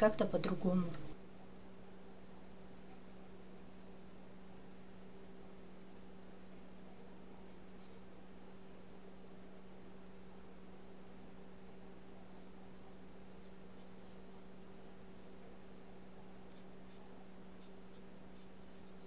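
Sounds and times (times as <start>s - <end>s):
low electrical hum: 0.0s - 19.0s
paintbrush strokes on paper: 2.4s - 4.2s, 5.0s - 8.2s, 12.2s - 15.4s, 16.4s - 19.0s.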